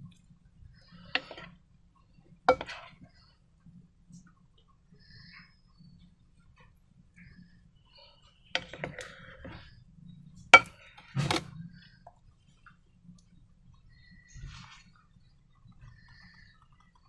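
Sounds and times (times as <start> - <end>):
sharp clicks and crackles: 14.9 - 17.0.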